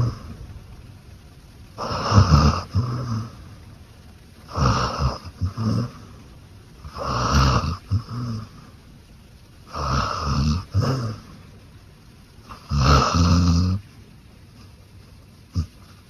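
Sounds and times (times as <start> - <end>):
dog snoring: 0.0 - 0.4, 1.8 - 3.5, 4.4 - 6.2, 6.8 - 8.8, 9.6 - 11.4, 12.4 - 13.9, 15.5 - 16.0.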